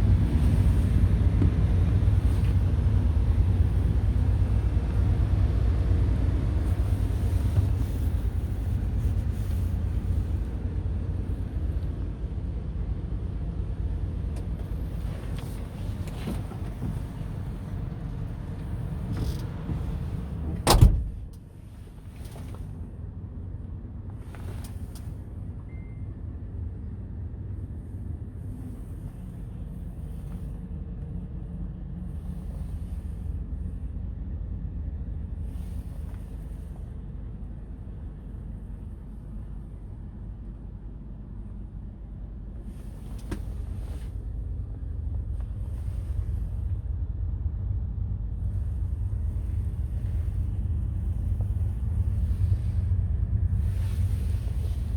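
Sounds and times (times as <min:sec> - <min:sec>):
loud thump: 0:20.5 - 0:21.2.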